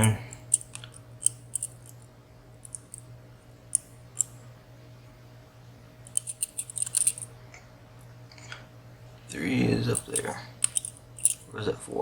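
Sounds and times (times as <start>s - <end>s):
lock pick metallic clicks: 10.0s - 11.4s.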